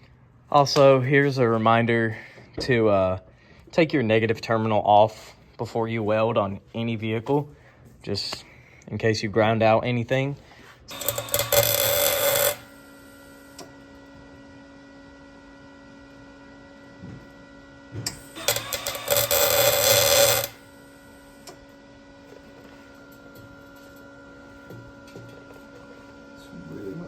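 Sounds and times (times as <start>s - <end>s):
welder arc crackle: 10.9s - 14.0s, 18.0s - 21.7s.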